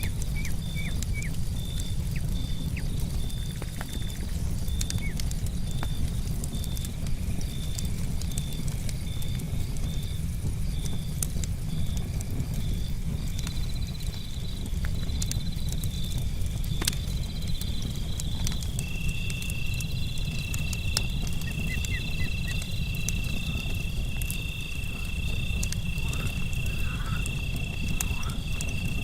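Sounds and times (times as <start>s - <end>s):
campfire crackling: 0.0s - 29.0s
crickets chirping: 0.0s - 29.0s.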